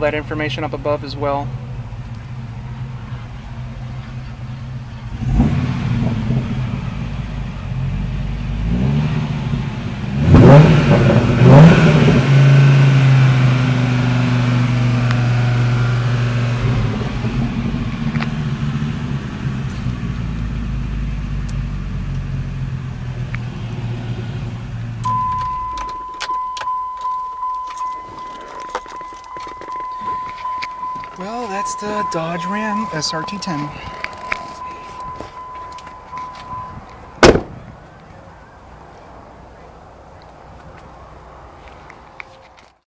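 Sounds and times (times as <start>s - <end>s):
engine revving: 1.4s - 26.1s, 28.0s - 37.7s
clicks: 25.1s - 38.1s.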